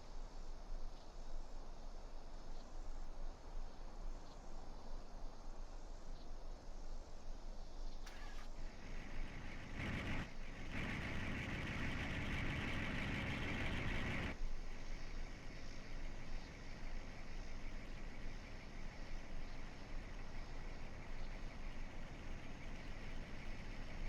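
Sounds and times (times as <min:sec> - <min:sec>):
truck engines rumbling: 0:08.1 - 0:14.4, 0:15.0 - 0:24.0.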